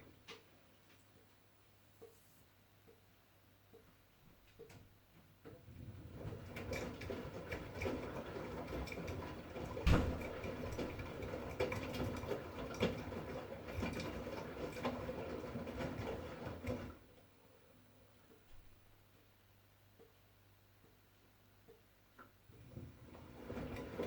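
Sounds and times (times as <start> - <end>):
washing machine drum sloshing: 5.5 - 17.1, 22.5 - 24.0.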